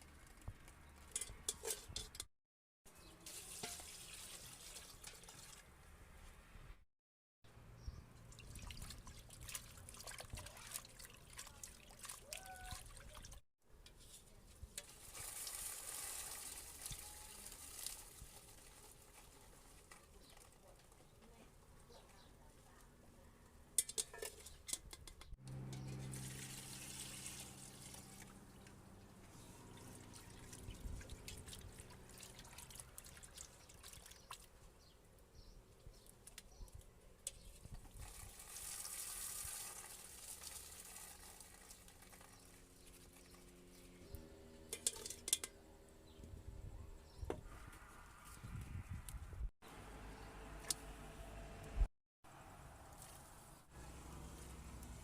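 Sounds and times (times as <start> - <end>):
water trickling and pouring: 3.2 - 5.7, 8.2 - 13.4, 14.8 - 20.9, 25.7 - 34.6, 37.8 - 43.8.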